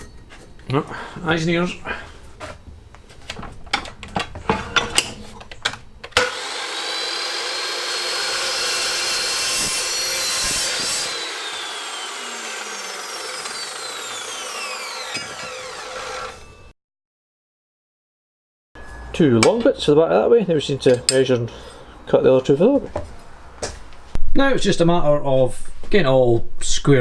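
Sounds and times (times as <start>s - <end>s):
chop saw cutting steel: 6.2s - 16.7s.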